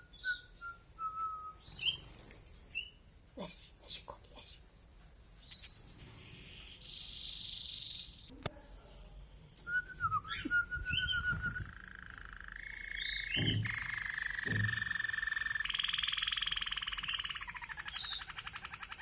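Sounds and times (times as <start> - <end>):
canary singing trills: 0.0 - 8.3, 10.2 - 19.0
soft low thumps: 10.1 - 11.8.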